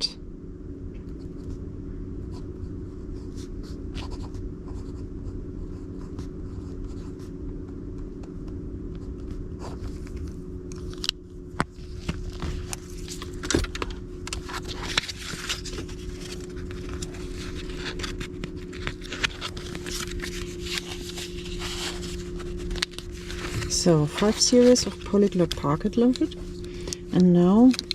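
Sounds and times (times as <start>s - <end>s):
low hum: 0.0s - 27.9s
paper cards rustling and clicking: 8.1s - 27.9s.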